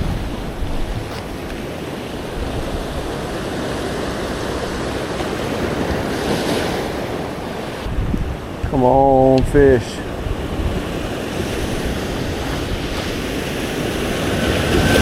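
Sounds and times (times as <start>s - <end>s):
ocean surf washing against rock: 0.0s - 15.0s
wind buffeting microphone: 0.0s - 15.0s.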